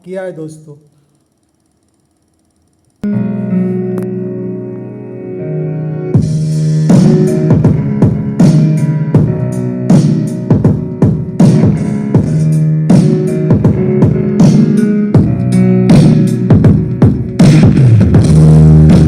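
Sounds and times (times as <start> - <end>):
music with heavy bass beat: 6.2 - 19.0.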